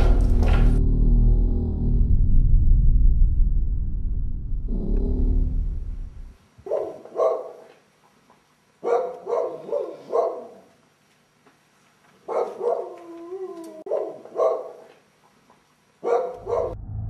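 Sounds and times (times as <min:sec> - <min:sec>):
dog barking: 0:06.6 - 0:07.8, 0:08.8 - 0:10.8, 0:12.2 - 0:13.0, 0:13.8 - 0:15.0, 0:16.0 - 0:16.8
dog howling: 0:12.4 - 0:14.8.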